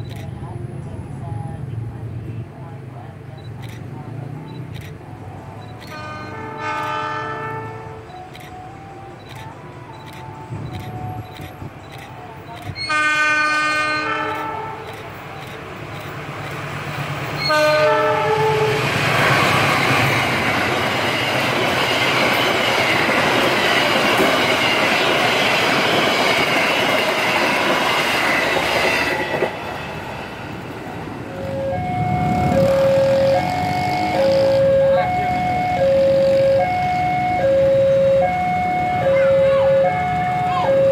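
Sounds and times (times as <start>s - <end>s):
train horn blast: 5.9s - 8.1s, 12.8s - 14.9s, 17.4s - 20.2s, 31.3s - 40.9s
train wheels rushing on rail: 9.4s - 40.9s
two-tone alarm: 31.4s - 40.9s.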